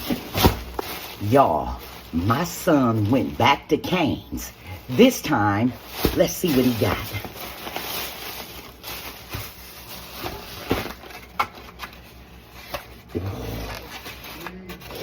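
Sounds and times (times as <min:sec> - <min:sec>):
paper and cardboard rustling: 0:00.0 - 0:04.1, 0:04.9 - 0:15.0.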